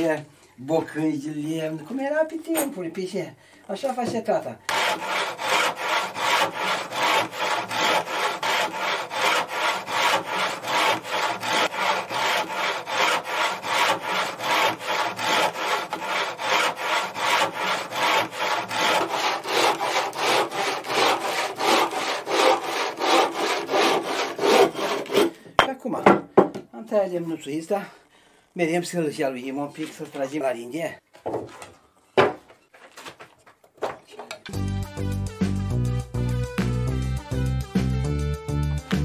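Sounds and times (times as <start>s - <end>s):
hand saw cutting wood: 4.7s - 25.4s.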